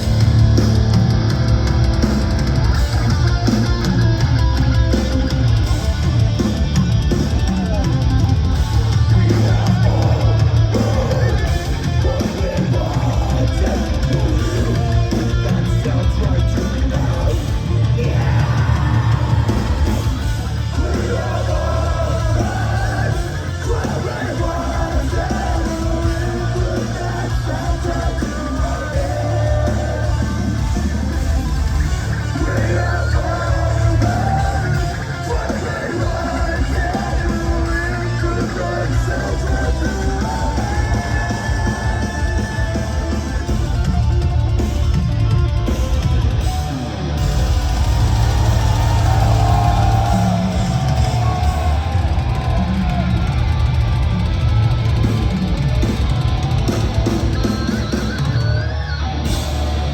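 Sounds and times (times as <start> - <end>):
metal band playing live: 0.0 - 59.9
screamed vocals: 16.9 - 30.5, 32.3 - 43.3, 47.8 - 53.6.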